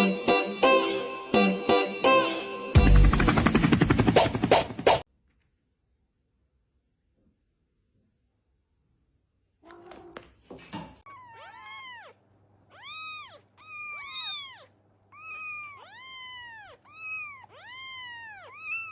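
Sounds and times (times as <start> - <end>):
cat meowing: 9.6 - 10.3, 11.1 - 18.9.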